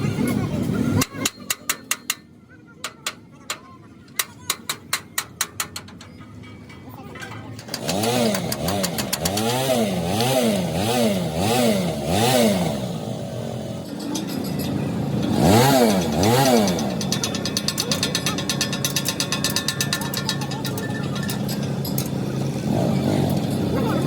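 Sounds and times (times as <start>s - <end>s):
engine revving: 7.7s - 24.0s.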